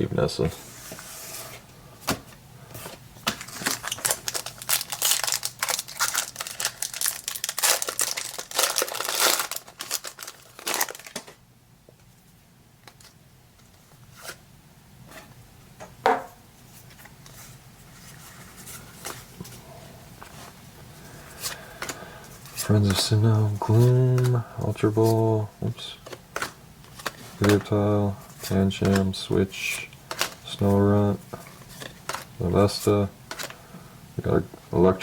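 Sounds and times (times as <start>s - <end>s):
foil wrapper crinkling: 3.3s - 11.4s.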